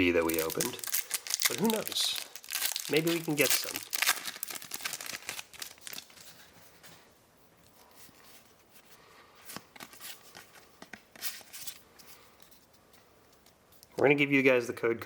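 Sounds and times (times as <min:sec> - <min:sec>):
foil wrapper crinkling: 0:00.0 - 0:06.5
cards being handled: 0:09.4 - 0:12.7.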